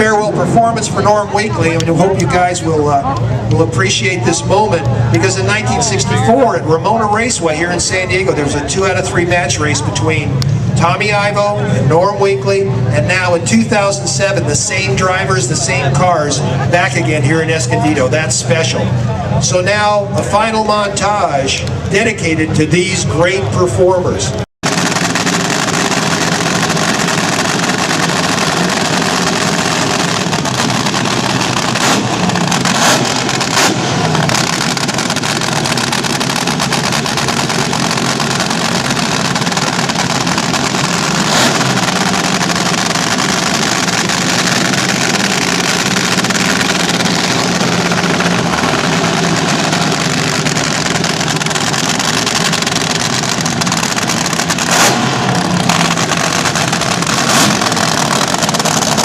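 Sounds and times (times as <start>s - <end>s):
drag racers engines running: 0.0s - 59.0s.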